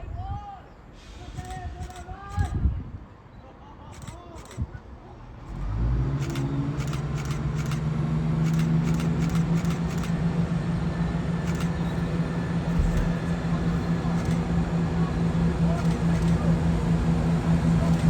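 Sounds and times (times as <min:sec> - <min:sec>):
train engine running: 0:01.0 - 0:02.6, 0:03.9 - 0:04.7, 0:05.3 - 0:18.0
short clicks: 0:01.4 - 0:02.6, 0:03.9 - 0:04.8, 0:06.2 - 0:10.2, 0:11.4 - 0:13.3, 0:14.0 - 0:14.5, 0:15.8 - 0:16.5.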